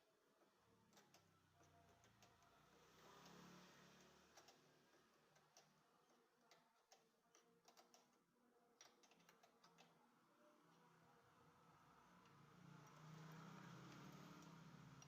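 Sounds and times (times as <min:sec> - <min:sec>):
light clicks and taps: 0:00.4 - 0:08.2.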